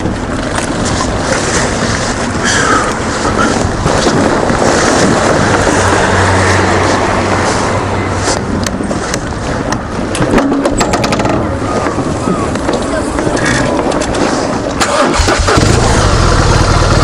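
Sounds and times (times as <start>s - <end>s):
wind rushing over microphone: 0.0s - 17.0s
motorcycle engine running: 15.2s - 17.0s.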